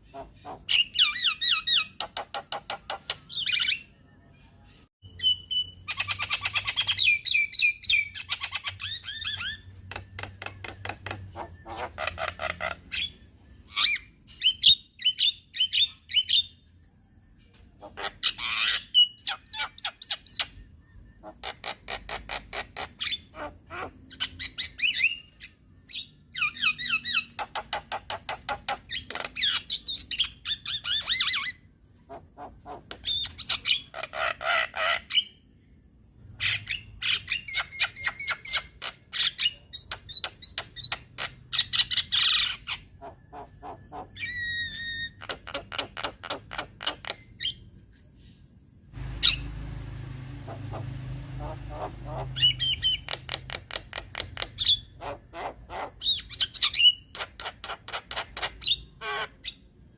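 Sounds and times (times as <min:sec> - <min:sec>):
bird singing with clicks and whistles: 0:00.1 - 0:16.8, 0:18.2 - 0:23.3, 0:24.1 - 0:31.6, 0:32.9 - 0:33.9, 0:36.4 - 0:47.7, 0:49.0 - 0:49.6, 0:50.5 - 0:55.0, 0:56.0 - 0:59.7.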